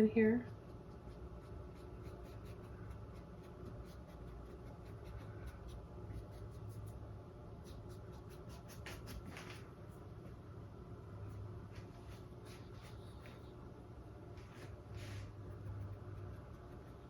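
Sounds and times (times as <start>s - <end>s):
low steady hum: 0.0s - 17.0s
paintbrush strokes on canvas: 11.7s - 13.6s, 14.4s - 15.8s.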